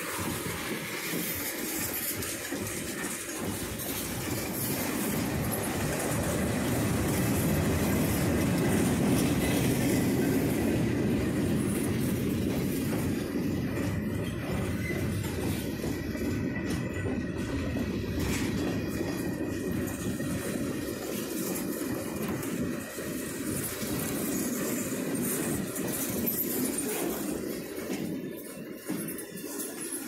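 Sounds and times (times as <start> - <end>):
freight train wheels clattering: 0.0 - 30.0
high wheel squeal: 12.9 - 17.3.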